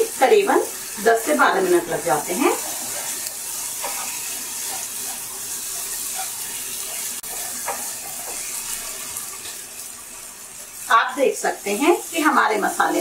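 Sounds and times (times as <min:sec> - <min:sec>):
gravy sizzling in hot oil: 0:00.0 - 0:13.0
spatula stirring in pan: 0:00.8 - 0:10.9.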